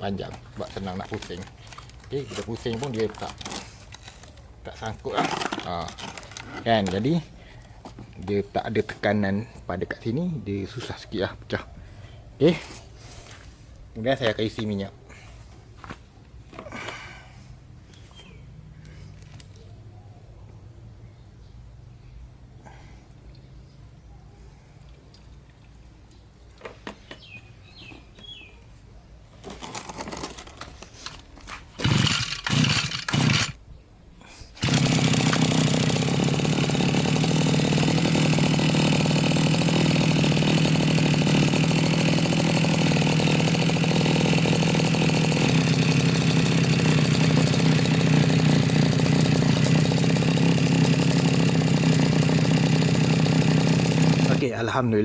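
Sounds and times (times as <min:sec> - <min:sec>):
brush cutter engine idling: 0:00.0 - 0:19.6, 0:29.4 - 0:33.6, 0:34.5 - 0:54.8
recoil starter pulls: 0:00.1 - 0:08.5, 0:29.4 - 0:33.6, 0:34.6 - 0:54.5.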